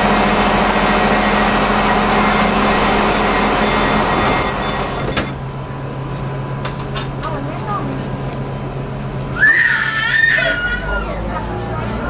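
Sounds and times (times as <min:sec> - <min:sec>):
train rumbling on board: 0:00.0 - 0:12.0
constant hum: 0:01.8 - 0:12.0.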